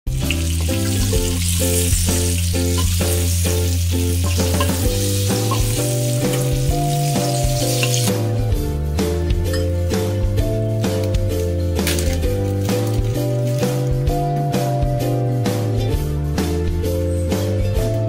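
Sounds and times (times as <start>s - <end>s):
chicken frying in oil: 0.1s - 8.3s
background music: 0.1s - 18.0s
metal spatula turning food: 0.2s - 8.2s.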